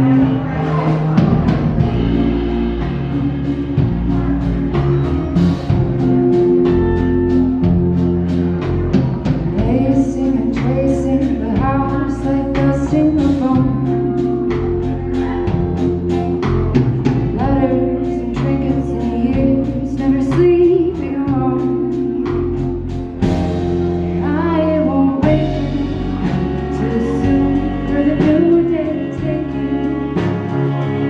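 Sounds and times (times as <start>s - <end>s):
person singing: 0.0s - 22.9s, 23.8s - 31.0s
bass line: 0.0s - 31.0s.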